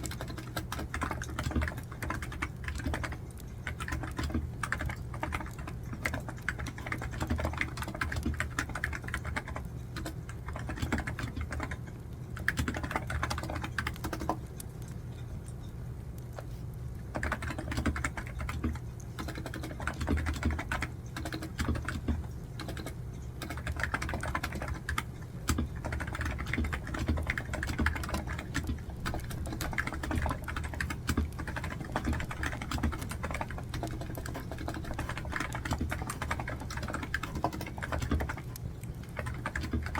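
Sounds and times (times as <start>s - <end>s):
typing on computer keyboard: 0.0s - 15.6s, 17.1s - 39.9s.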